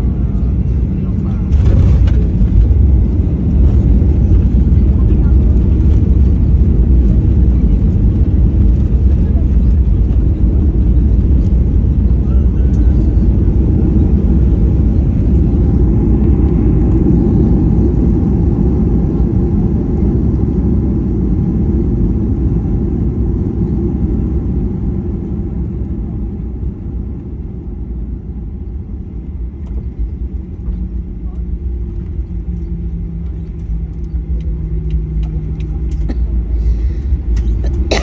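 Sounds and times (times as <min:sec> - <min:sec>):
airliner engines and wheels rumbling: 0:00.0 - 0:38.0.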